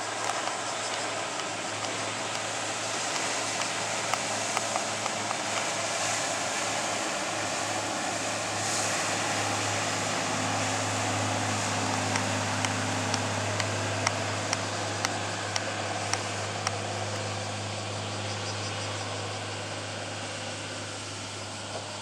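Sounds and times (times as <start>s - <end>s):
diesel boat engine idling: 0.0s - 22.0s
regular sharp tick: 0.1s - 5.7s, 11.5s - 17.3s.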